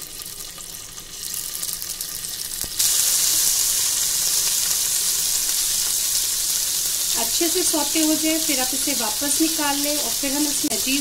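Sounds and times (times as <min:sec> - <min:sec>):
cheese cubes sizzling in oil: 0:00.0 - 0:11.0.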